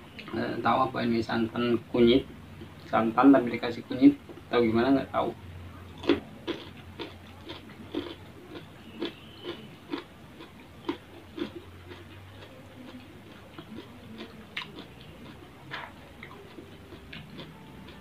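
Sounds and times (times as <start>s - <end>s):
person chewing with mouth smacks: 5.9s - 18.0s.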